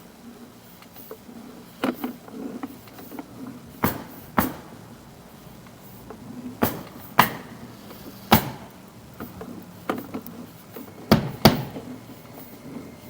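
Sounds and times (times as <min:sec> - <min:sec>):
faint low hum: 0:00.0 - 0:13.0
sharp knocks: 0:03.8 - 0:04.8, 0:06.6 - 0:07.6, 0:08.3 - 0:08.7, 0:11.1 - 0:11.8.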